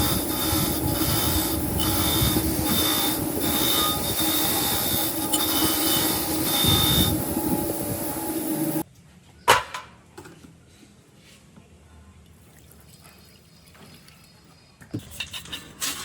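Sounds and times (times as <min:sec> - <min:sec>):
loud steady machine noise: 0:00.0 - 0:08.8.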